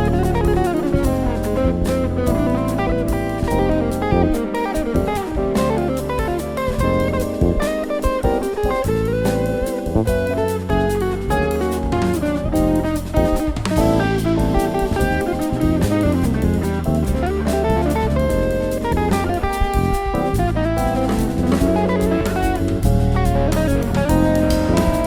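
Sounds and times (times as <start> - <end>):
bass: 0.0 - 25.0
drum kit: 0.0 - 25.0
lead guitar: 0.0 - 25.0.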